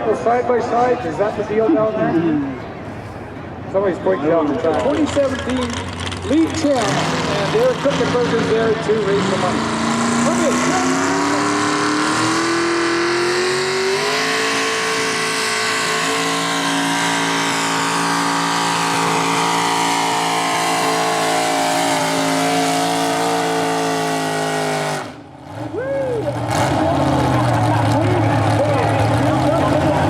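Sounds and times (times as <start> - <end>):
tractor engine at full throttle: 4.7 - 30.0.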